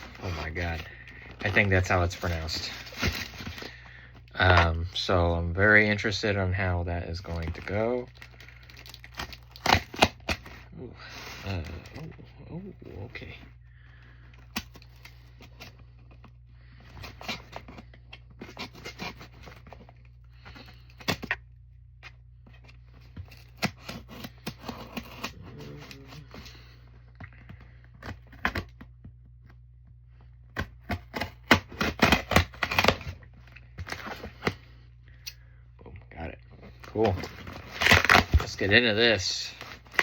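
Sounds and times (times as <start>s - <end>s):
package clicks and scraping: 0.0s - 4.8s, 7.2s - 10.6s, 30.5s - 34.6s, 36.6s - 38.8s, 39.5s - 40.0s
package rustling and tearing: 0.0s - 5.0s, 7.1s - 10.6s, 30.6s - 34.6s, 36.6s - 40.0s
steady low hum: 0.0s - 40.0s.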